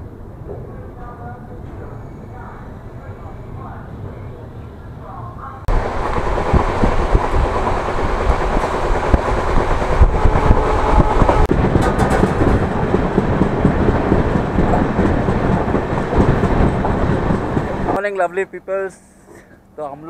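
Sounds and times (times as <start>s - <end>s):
train wheels rumbling on track: 5.7s - 19.0s
rattles and knocks: 6.2s - 18.0s.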